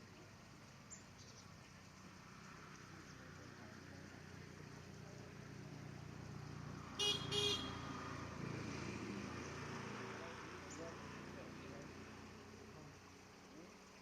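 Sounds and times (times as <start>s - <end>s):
vehicle engine rumbling: 0.0s - 13.9s
short horn toots: 7.0s - 7.8s.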